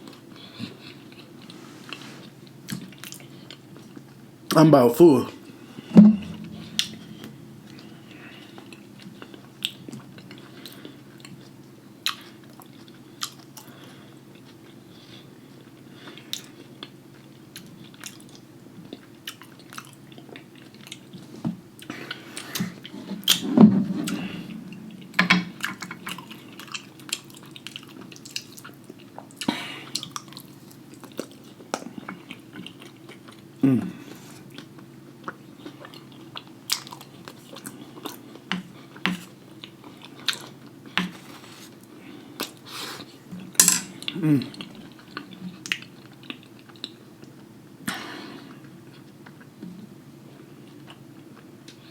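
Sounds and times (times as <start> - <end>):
steady low hum: 4.5 - 11.4, 21.6 - 28.0
chewing and mouth smacking: 8.7 - 21.2, 25.6 - 33.4, 34.5 - 47.5.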